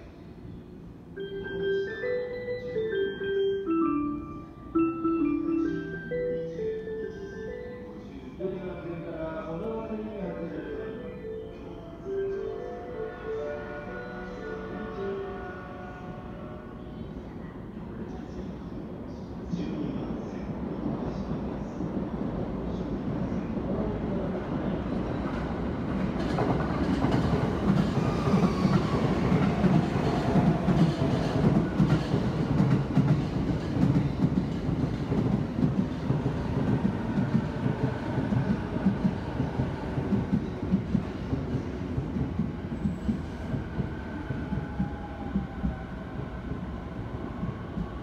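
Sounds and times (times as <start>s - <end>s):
train wheels rumbling and clattering: 20.7s - 48.0s.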